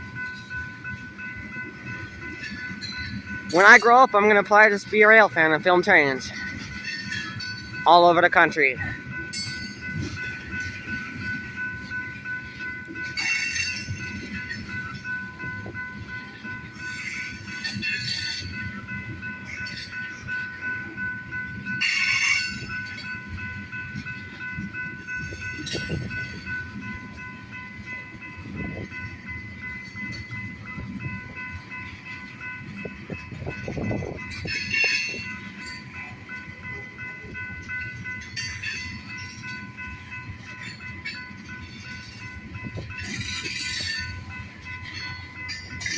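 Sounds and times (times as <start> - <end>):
train rumbling on rails: 0.0 - 45.9.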